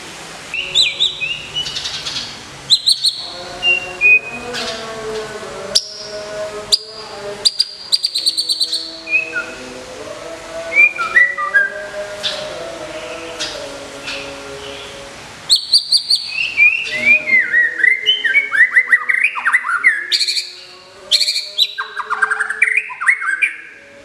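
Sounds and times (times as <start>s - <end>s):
bird singing whistled phrases: 0.5s - 4.3s, 15.5s - 20.5s, 21.1s - 23.8s.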